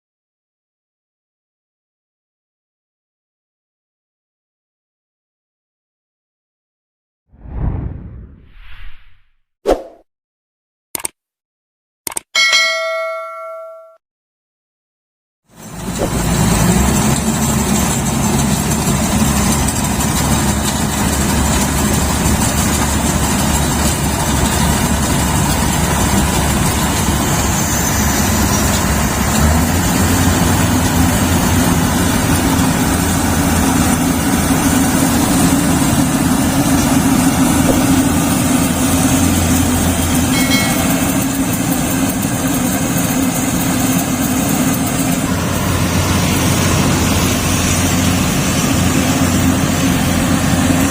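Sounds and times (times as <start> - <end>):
combine harvester running: 15.5 - 50.9.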